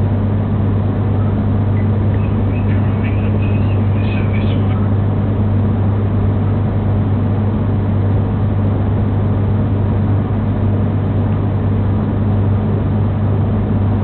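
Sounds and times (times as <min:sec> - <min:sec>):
train engine drone: 0:00.0 - 0:08.1.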